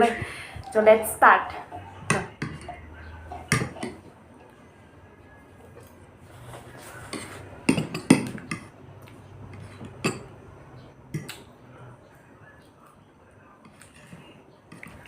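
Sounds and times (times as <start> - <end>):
cutlery clinking against plates: 2.0 - 4.1, 7.1 - 8.7, 9.5 - 10.4.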